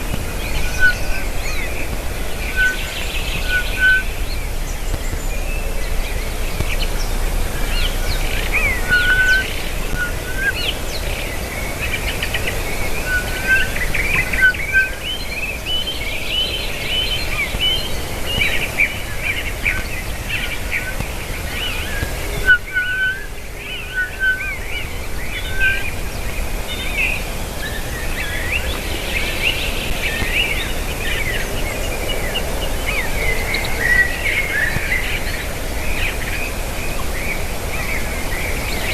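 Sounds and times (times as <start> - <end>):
steady low rumble: 0.0 - 22.7
birds chirping and trilling: 0.0 - 38.9
low bird notes: 0.0 - 38.9.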